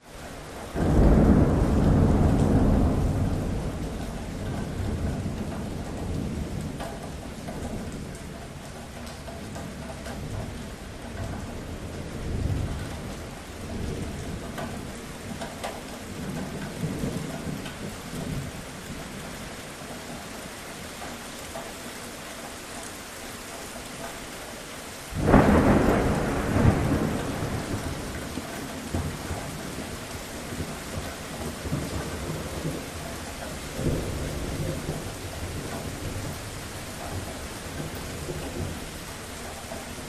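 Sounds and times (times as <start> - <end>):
steady rain: 0.0 - 40.0
thunder rumbling: 0.6 - 19.5, 25.1 - 40.0
loud thunderclap: 0.7 - 8.2, 25.1 - 33.0, 33.6 - 39.0.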